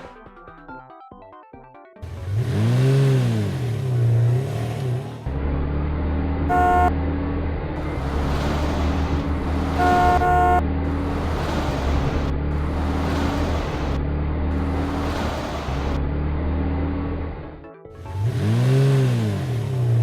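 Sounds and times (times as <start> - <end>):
vehicle engine running: 2.0 - 20.0
short horn toot: 6.5 - 6.9, 9.7 - 10.6.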